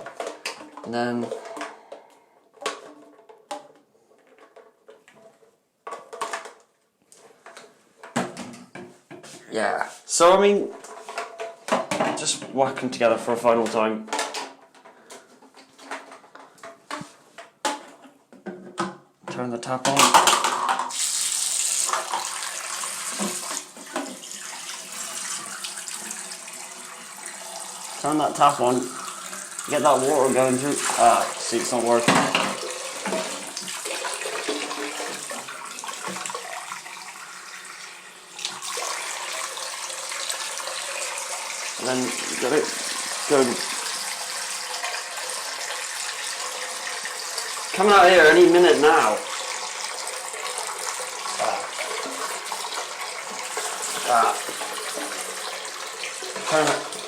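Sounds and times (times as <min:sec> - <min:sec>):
water running from a tap: 0:20.9 - 0:57.0.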